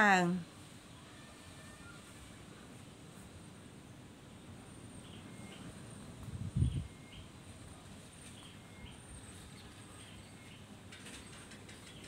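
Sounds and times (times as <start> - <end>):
bird chirping: 4.9 - 5.8.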